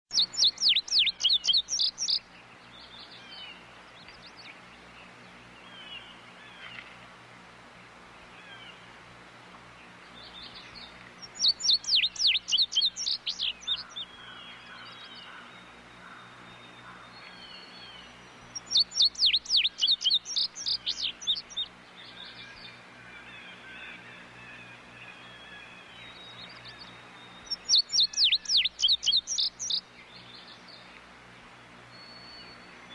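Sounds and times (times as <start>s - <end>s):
bird repeating downward notes: 0.1s - 2.2s, 11.2s - 13.8s, 18.6s - 21.7s, 27.5s - 29.8s
faint calls of other birds: 0.1s - 32.9s.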